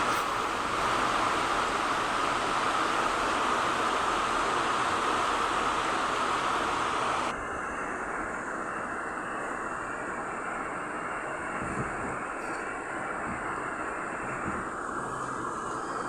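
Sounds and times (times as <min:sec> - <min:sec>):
rain and wind rushing: 0:00.0 - 0:07.3.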